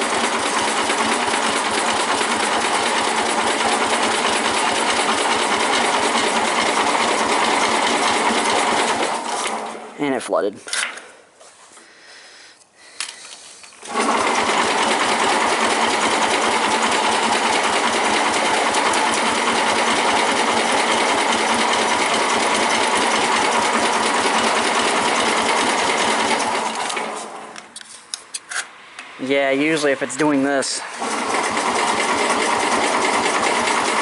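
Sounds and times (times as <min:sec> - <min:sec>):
electric starter cranking engine: 0:00.0 - 0:10.0, 0:13.8 - 0:27.7, 0:30.6 - 0:34.0.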